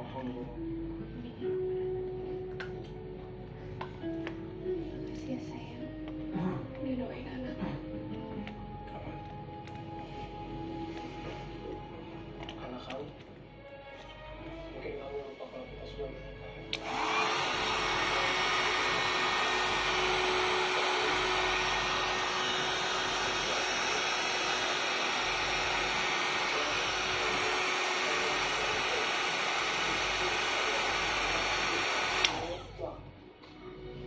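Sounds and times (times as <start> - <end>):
hair dryer switch click: 16.7 - 32.6
hair dryer blowing air: 16.7 - 32.8.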